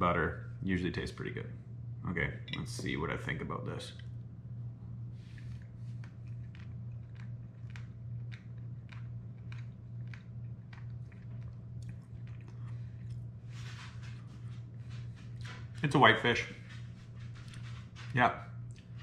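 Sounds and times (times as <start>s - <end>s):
steady low hum: 0.0s - 19.0s
man chewing food: 5.1s - 15.8s, 16.6s - 19.0s.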